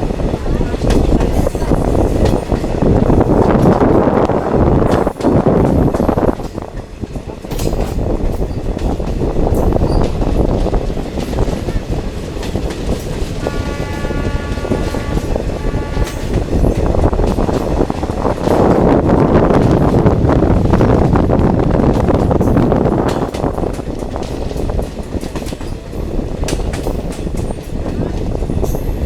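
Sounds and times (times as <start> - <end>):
train rumbling: 0.0 - 29.0
train horn: 13.4 - 17.1.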